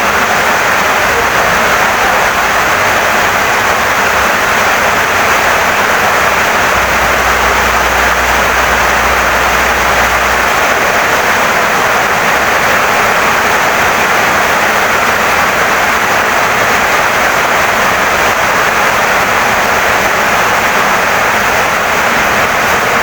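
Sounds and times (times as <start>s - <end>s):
heavy rain pouring: 0.0s - 23.0s
low hum: 0.2s - 14.2s.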